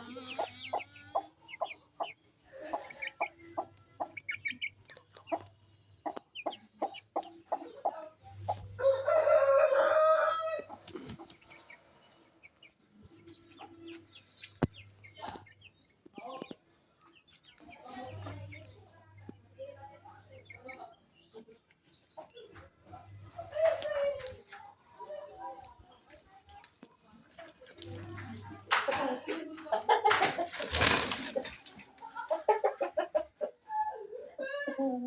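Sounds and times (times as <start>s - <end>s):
chickens clucking: 0.0s - 35.0s
rooster crowing: 8.8s - 10.7s.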